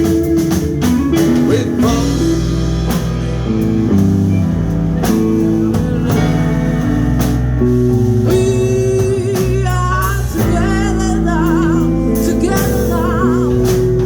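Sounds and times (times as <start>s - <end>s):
bass guitar: 0.0s - 14.0s
drum kit: 0.0s - 14.0s
guitar: 0.0s - 14.0s
keyboard: 0.0s - 14.0s.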